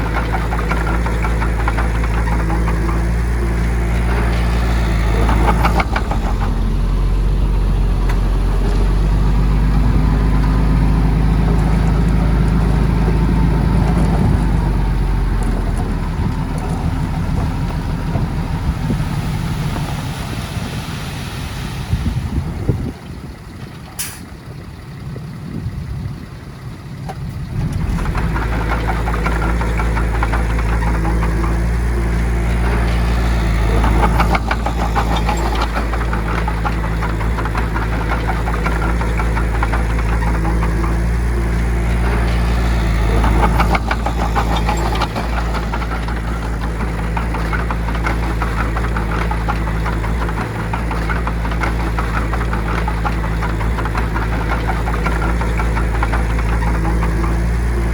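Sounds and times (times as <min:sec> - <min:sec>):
diesel engine clattering: 0:00.0 - 0:57.9.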